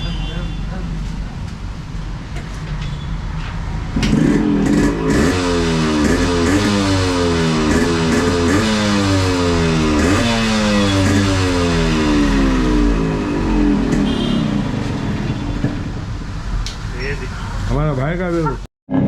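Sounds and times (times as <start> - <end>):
two-stroke engine throttle blips: 4.1 - 14.8.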